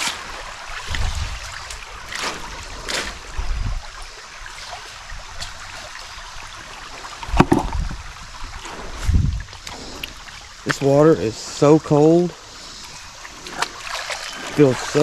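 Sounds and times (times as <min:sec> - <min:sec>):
creek water flowing: 0:00.0 - 0:15.0
splashing steps wading: 0:08.7 - 0:15.0.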